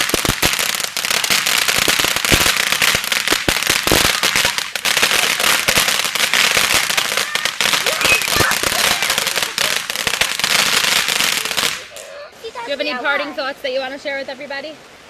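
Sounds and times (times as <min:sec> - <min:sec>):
firecrackers crackling: 0:00.0 - 0:13.4.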